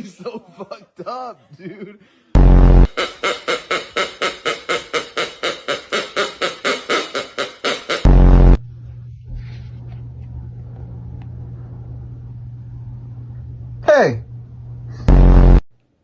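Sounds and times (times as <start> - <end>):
heavy bass hit: 2.4 - 3.1, 8.0 - 8.6, 15.0 - 15.6
steady low hum: 2.4 - 4.8, 8.0 - 15.7
music with quick even beat: 2.4 - 8.6.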